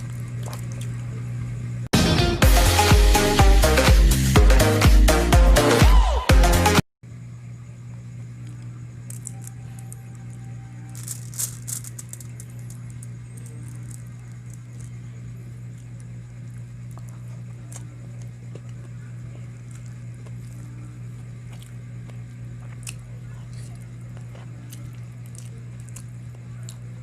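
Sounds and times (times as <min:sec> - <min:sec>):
steady low hum: 0:00.0 - 0:05.7, 0:07.0 - 0:27.0
small clicks and rattles: 0:10.9 - 0:15.0.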